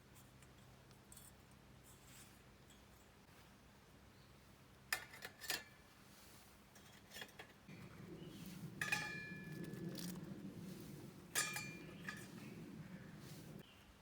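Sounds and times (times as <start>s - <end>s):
low rustling: 7.7s - 13.6s.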